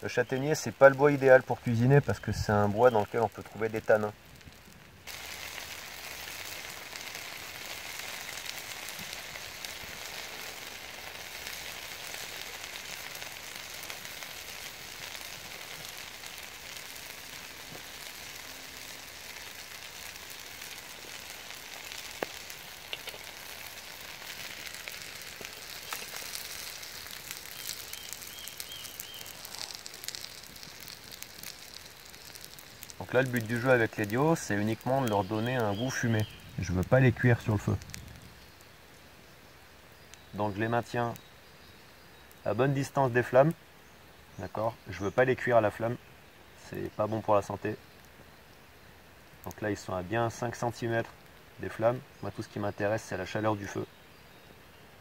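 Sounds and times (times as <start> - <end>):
food sizzling: 0.0 - 53.7
burning wood crackling: 0.0 - 55.0.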